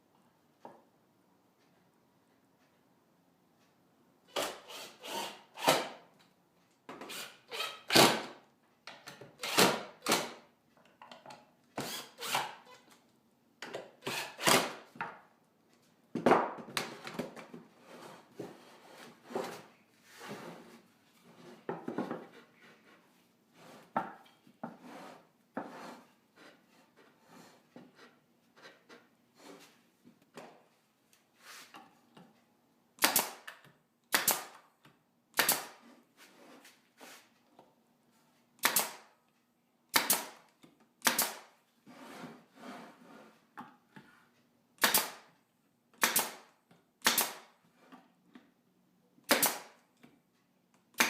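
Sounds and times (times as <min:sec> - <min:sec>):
wooden knocks and scrapes: 0:17.0 - 0:29.8.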